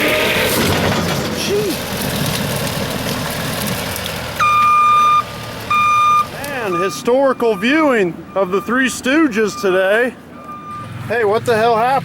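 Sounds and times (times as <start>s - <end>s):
heavy machinery running: 0.0s - 6.8s
back-up alarm beeps: 4.4s - 11.0s.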